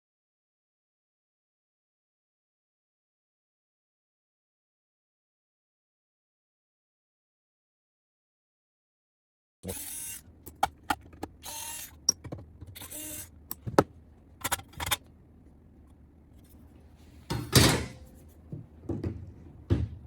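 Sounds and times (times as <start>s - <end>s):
sharp clicks and knocks: 10.4s - 15.1s
scraping and rattling: 12.0s - 15.1s.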